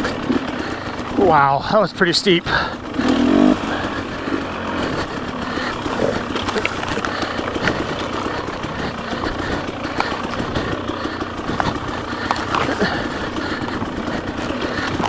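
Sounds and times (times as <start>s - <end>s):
dirt bike engine running: 0.0s - 15.0s
clicks and knocks from bike: 3.6s - 15.0s.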